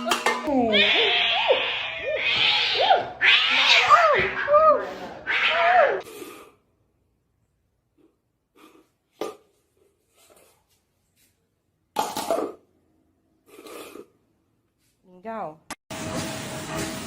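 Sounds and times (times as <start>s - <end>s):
cat meowing: 0.6s - 4.5s.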